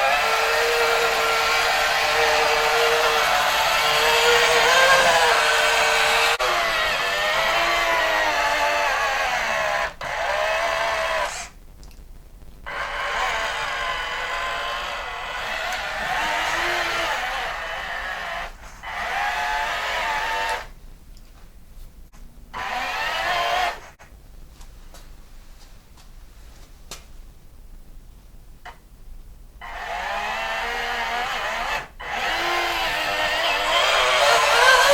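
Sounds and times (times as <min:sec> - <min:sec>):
small electric motors whining: 0:00.0 - 0:11.5, 0:12.7 - 0:20.7, 0:22.6 - 0:24.0, 0:29.6 - 0:34.9.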